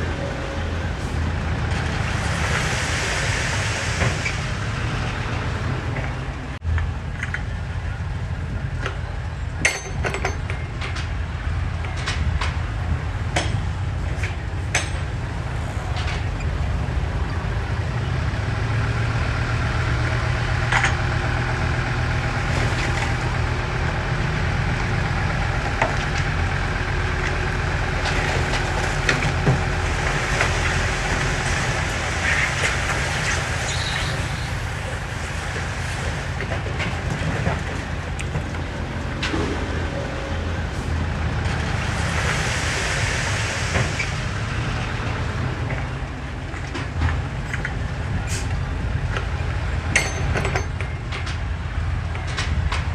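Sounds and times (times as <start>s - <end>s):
diesel engine rumbling: 0.0s - 52.9s.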